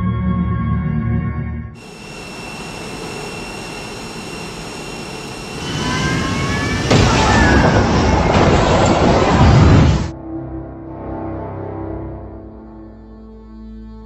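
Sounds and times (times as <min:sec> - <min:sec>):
jet engine whine: 0:01.8 - 0:10.1
rising engine tones: 0:01.8 - 0:10.1.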